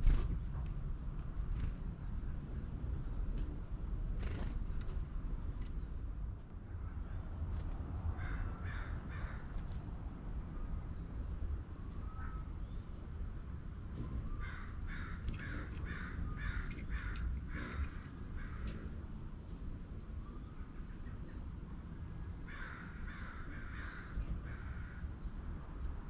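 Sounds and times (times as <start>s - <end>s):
steady low rumble: 0.0s - 26.0s
bird calling: 14.2s - 18.9s.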